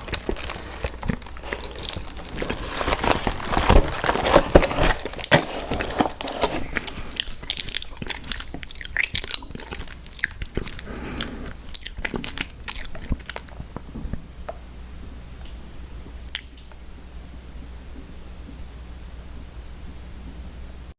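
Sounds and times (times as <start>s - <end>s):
crunchy cookie chewing: 0.0s - 14.4s
wet mouth clicks: 7.0s - 13.5s.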